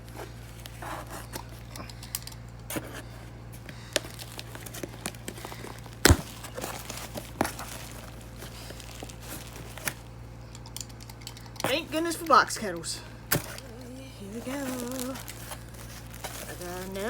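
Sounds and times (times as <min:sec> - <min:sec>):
packaging crinkling and tearing: 0:02.7 - 0:12.4, 0:13.3 - 0:17.0.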